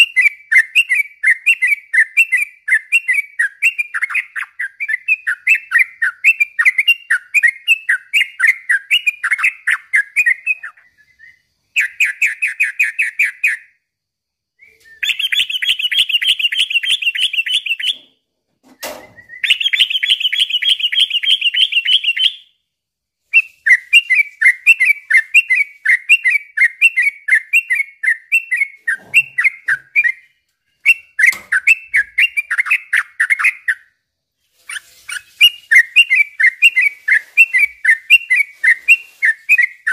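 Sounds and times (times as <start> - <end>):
bird chattering song: 0.0 - 13.8, 15.0 - 18.0, 19.3 - 22.5, 23.4 - 33.9.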